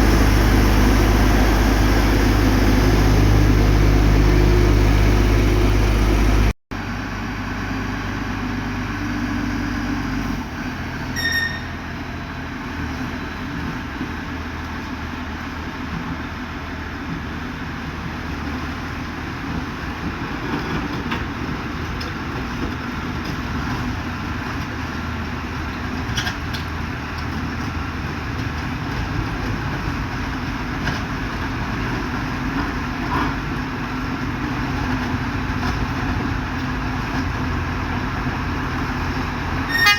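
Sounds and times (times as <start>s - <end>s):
heavy diesel engines running: 0.0s - 39.9s
short high beep: 11.2s - 11.7s.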